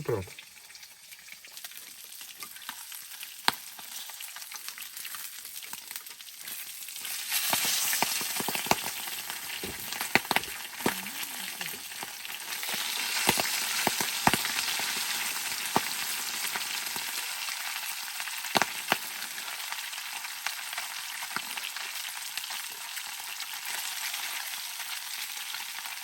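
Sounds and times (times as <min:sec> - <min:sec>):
fish sizzling in hot oil: 0:00.1 - 0:26.0
oil popping and spattering: 0:07.2 - 0:17.1.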